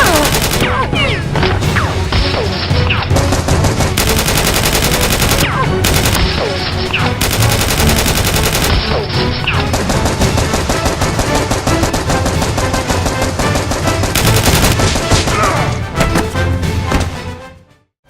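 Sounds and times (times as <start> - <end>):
rapid automatic gunfire: 0.0 - 0.8, 3.1 - 15.5.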